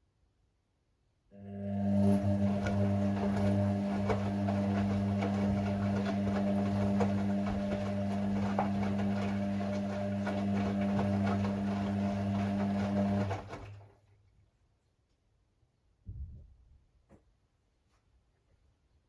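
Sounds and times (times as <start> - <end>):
washing machine humming: 1.4 - 14.1.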